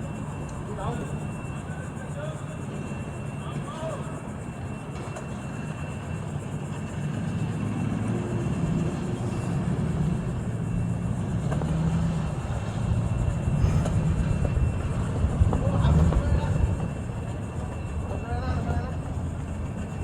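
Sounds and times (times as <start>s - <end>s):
engine low rumble: 5.0s - 20.0s.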